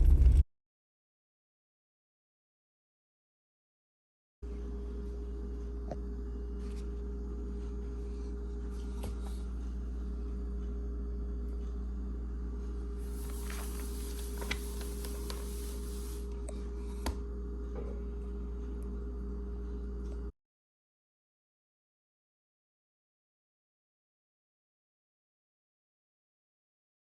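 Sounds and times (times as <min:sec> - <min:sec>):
low electrical hum: 0:04.4 - 0:20.3.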